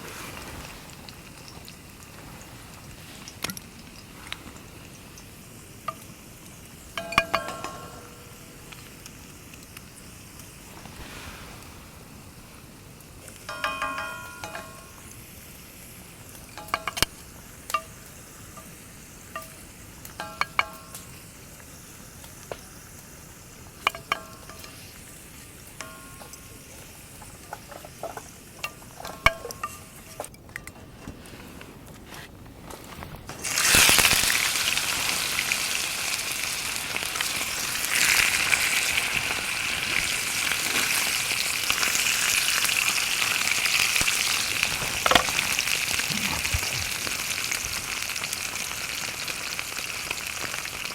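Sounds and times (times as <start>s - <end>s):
steak sizzling in a pan: 0.0s - 30.2s, 33.3s - 50.9s
metallic clinks of cooking gear: 5.0s - 8.9s, 13.4s - 15.2s.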